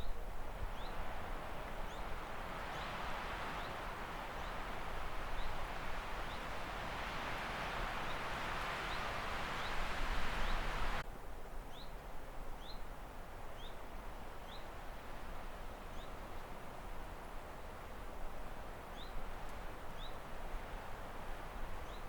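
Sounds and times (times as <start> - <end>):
steady rushing hiss: 2.9 - 11.0.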